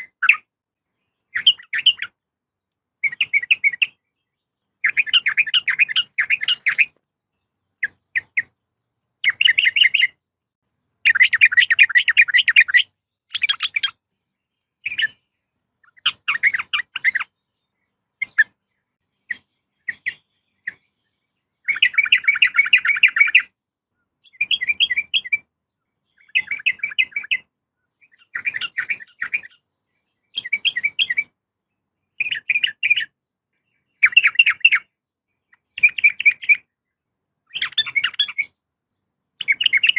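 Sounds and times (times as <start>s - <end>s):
bird chattering calls: 0.0s - 0.5s, 1.3s - 2.2s, 4.8s - 7.0s, 7.8s - 8.6s, 9.2s - 10.2s, 11.0s - 14.0s, 15.8s - 17.4s, 21.6s - 23.5s, 26.2s - 29.6s, 34.0s - 34.9s, 37.5s - 38.6s.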